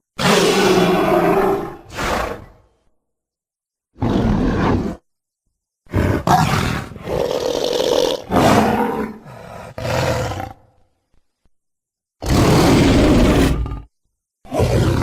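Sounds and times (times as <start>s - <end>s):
creature roars and growls: 0.2s - 2.5s, 5.9s - 10.6s, 12.2s - 13.9s, 14.5s - 15.0s.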